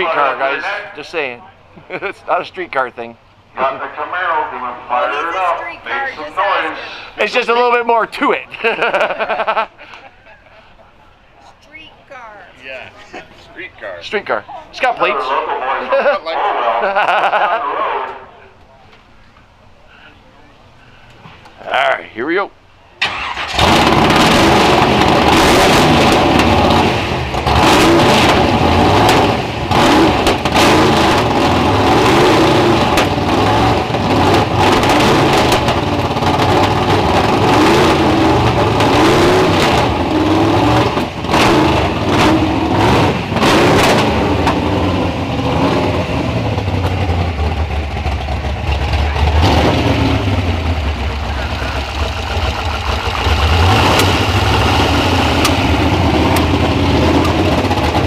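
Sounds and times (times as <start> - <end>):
race car engines revving: 0.0 - 10.6, 23.0 - 58.0.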